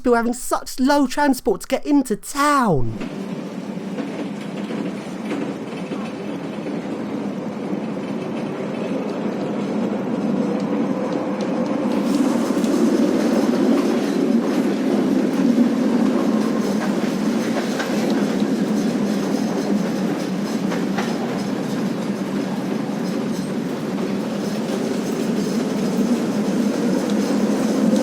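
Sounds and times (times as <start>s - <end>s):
tram wheels rumbling on rail: 3.7s - 28.0s.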